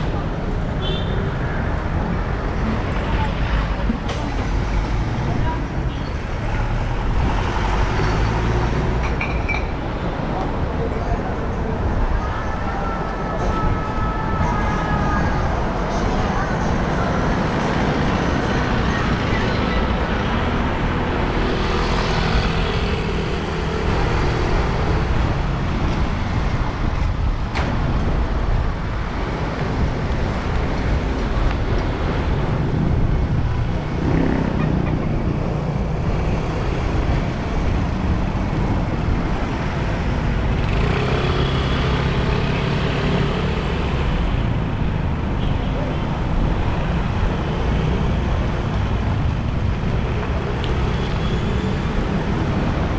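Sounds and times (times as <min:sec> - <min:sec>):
road traffic rumble: 0:00.0 - 0:52.9
engines revving: 0:30.7 - 0:44.8.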